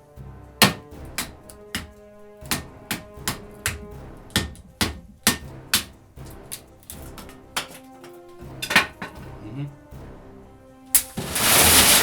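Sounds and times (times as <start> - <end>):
background music: 0.0 - 12.0
sharp knocks on a knife: 0.6 - 1.9, 2.5 - 5.9.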